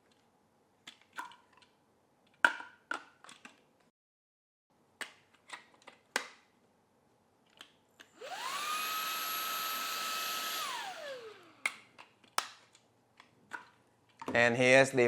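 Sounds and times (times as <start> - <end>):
handheld vacuum motor whine: 8.0 - 11.8.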